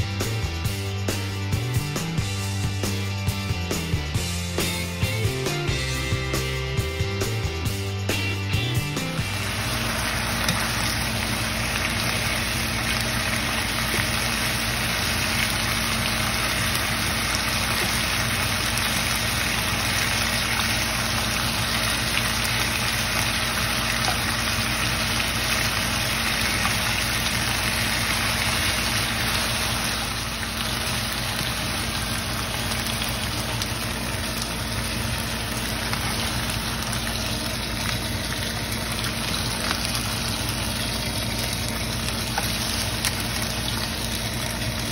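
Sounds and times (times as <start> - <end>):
meat sizzling in a frying pan: 8.5 - 44.9
steady low hum: 9.0 - 44.9.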